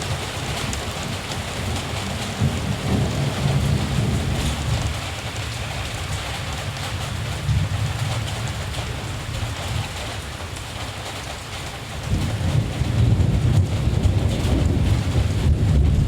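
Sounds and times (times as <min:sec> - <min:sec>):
distant thunder rumble: 0:00.0 - 0:10.2, 0:12.0 - 0:16.0
steady rain: 0:00.0 - 0:16.0.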